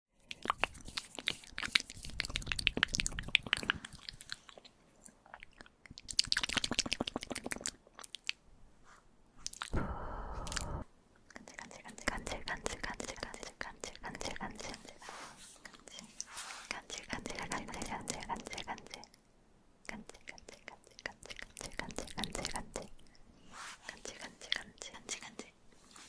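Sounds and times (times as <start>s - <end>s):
wet mouth clicks and smacks: 0.2s - 8.4s, 9.4s - 9.8s, 10.4s - 15.0s, 16.9s - 19.2s, 19.8s - 23.2s
rushing breath: 9.8s - 10.8s.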